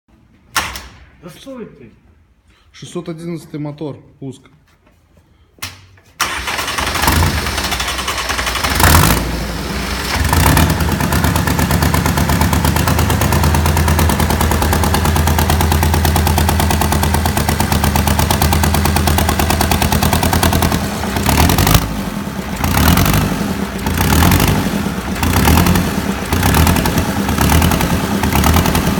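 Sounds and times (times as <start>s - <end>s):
engine cranking and running: 6.2s - 28.9s
engine revving: 6.2s - 28.9s.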